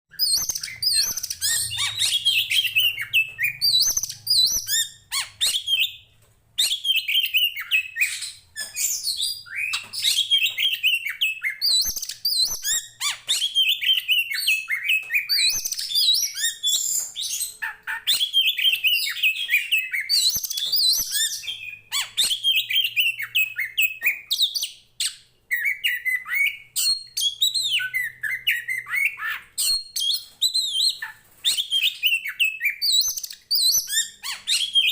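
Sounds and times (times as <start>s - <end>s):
songbird singing varied song: 0.1s - 6.0s.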